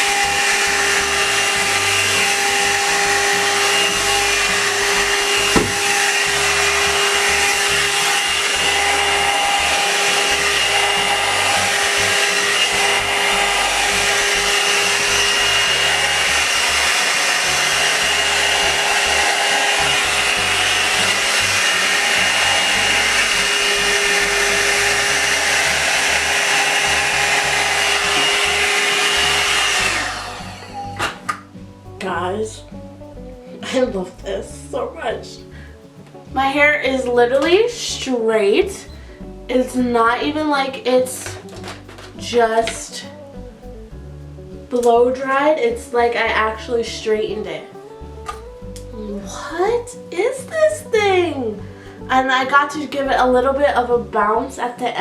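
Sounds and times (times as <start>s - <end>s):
hair dryer brush running: 0.0s - 32.2s, 38.7s - 42.9s.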